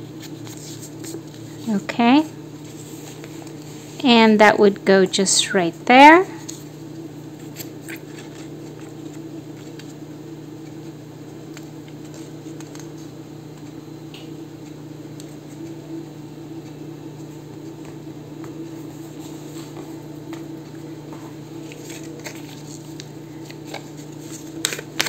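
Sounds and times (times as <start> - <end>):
paper rustling: 0.2 - 1.5, 7.4 - 10.0, 21.6 - 25.0.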